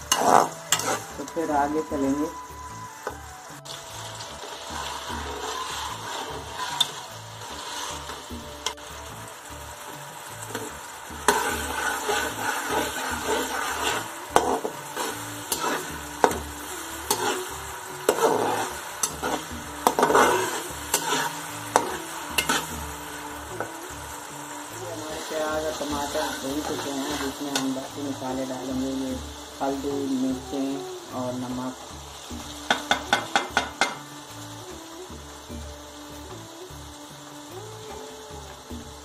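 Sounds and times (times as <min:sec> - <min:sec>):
metal spatula scraping pan: 0:00.0 - 0:01.3, 0:04.4 - 0:08.8, 0:10.5 - 0:23.0
onions sizzling in hot oil: 0:00.0 - 0:39.0.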